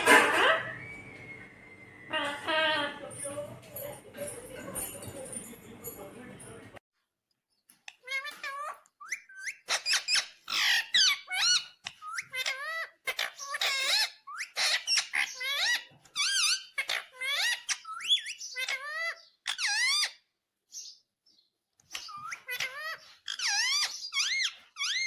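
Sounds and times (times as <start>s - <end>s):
parrot chattering: 7.8s - 20.3s, 21.8s - 25.0s.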